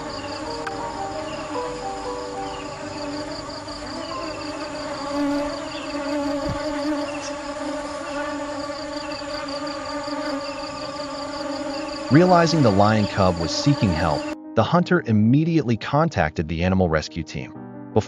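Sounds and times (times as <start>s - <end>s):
insect-like buzzing drone: 0.0s - 14.4s
low thump: 6.4s - 6.8s.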